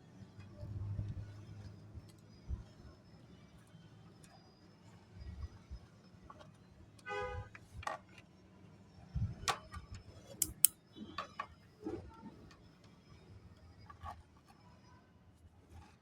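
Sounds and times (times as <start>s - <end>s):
snack pieces clicking: 10.4s - 10.7s.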